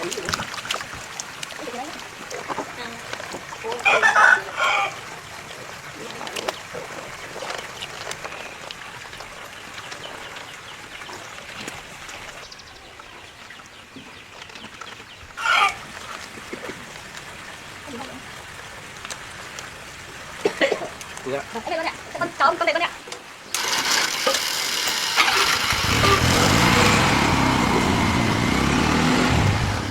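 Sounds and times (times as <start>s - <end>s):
rooster crowing: 3.8s - 5.0s.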